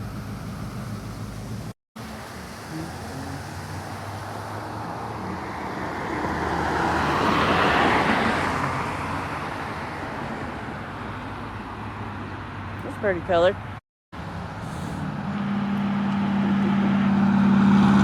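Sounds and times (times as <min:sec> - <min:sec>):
low engine hum: 0:00.0 - 0:18.0
car driving past: 0:00.9 - 0:12.7.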